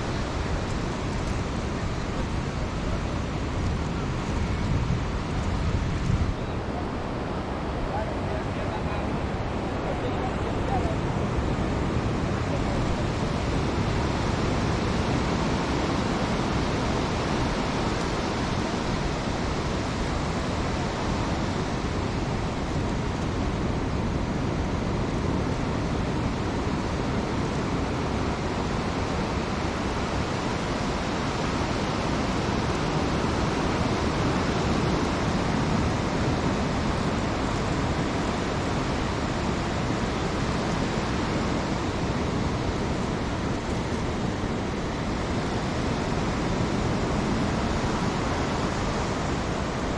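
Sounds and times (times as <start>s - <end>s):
ocean surf breaking: 0.0s - 49.9s.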